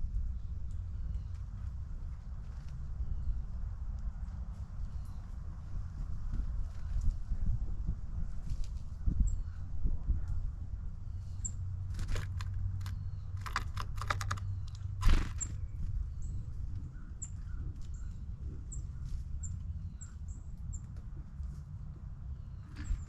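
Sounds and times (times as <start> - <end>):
beaks tapping on bird feeder: 12.0 - 15.5.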